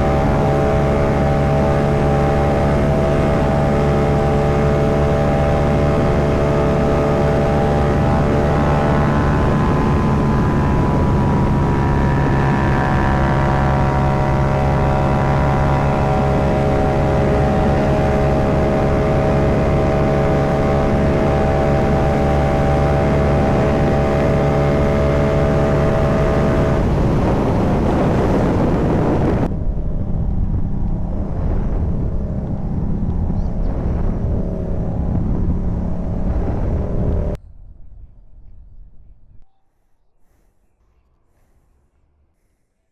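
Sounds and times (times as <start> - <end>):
motorcycle engine running: 0.0 - 37.4
wind rush: 0.0 - 39.4.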